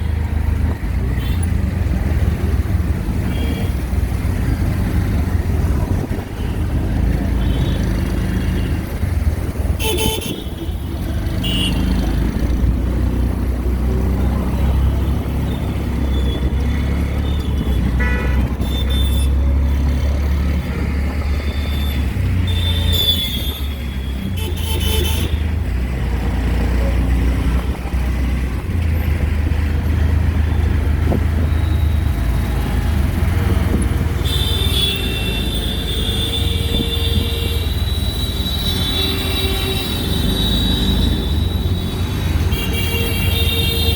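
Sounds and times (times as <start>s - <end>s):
auto-rickshaw engine drone: 0.0s - 43.9s
street traffic: 0.0s - 43.9s
horns honking: 15.1s - 19.6s, 34.2s - 43.9s.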